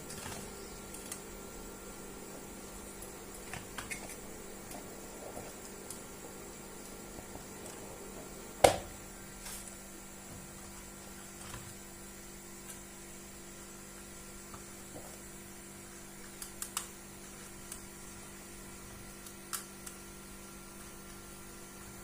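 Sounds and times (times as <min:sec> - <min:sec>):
low electrical hum: 0:00.0 - 0:22.0
small sharp clicks: 0:16.2 - 0:16.9, 0:19.2 - 0:20.0.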